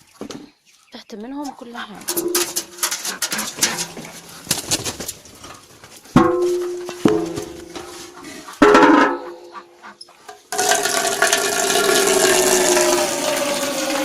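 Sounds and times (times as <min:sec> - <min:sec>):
birds: 0:00.0 - 0:10.6
metal clatter: 0:02.1 - 0:09.4, 0:10.3 - 0:12.8.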